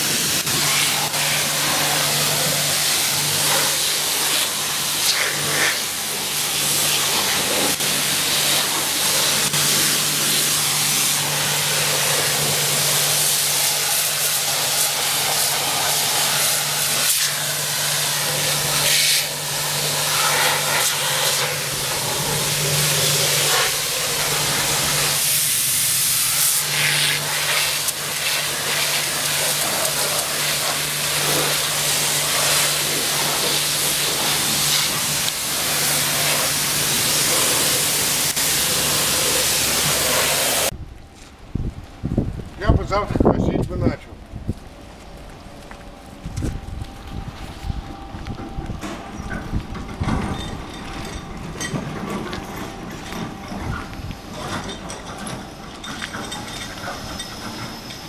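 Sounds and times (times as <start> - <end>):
pressure washer water spray hiss: 0.0 - 40.8
pressure washer pump hum: 0.0 - 41.2.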